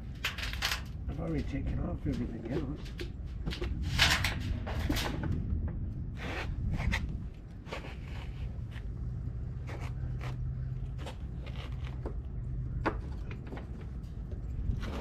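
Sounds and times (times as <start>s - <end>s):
steady low hum: 0.0s - 15.0s
engine scraping and rubbing: 6.1s - 15.0s.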